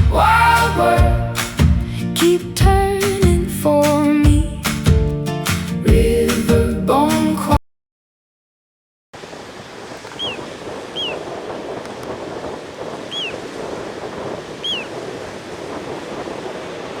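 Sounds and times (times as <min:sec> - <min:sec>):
rush of wind or water: 0:09.2 - 0:17.0
bird high whistle calls: 0:10.1 - 0:11.3, 0:13.0 - 0:13.5, 0:14.6 - 0:15.0.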